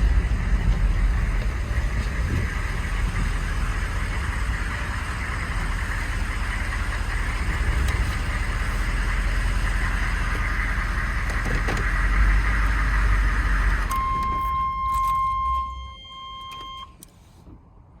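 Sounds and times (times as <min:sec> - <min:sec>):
diesel engine running and winding down: 0:00.0 - 0:14.8
electronic warning tone: 0:13.9 - 0:16.9.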